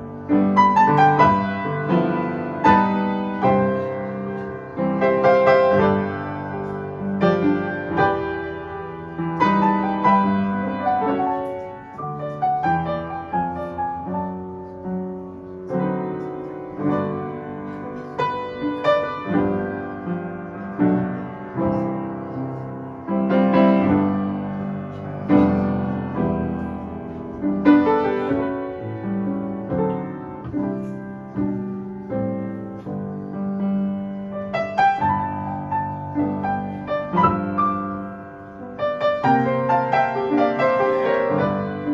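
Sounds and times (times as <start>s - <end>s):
solo piano music: 0.0s - 41.9s.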